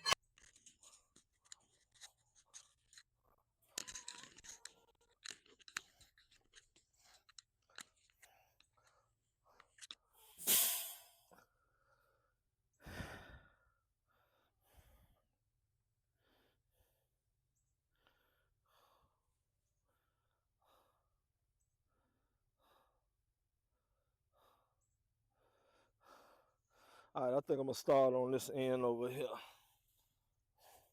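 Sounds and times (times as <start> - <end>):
man breathing hard: 11.5 - 15.2, 23.8 - 27.1.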